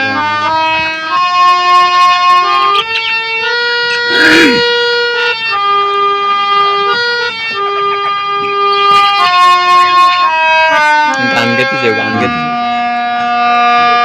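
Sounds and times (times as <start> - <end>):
harmonium slow melody: 0.0 - 14.0
myna harsh call: 4.1 - 4.8.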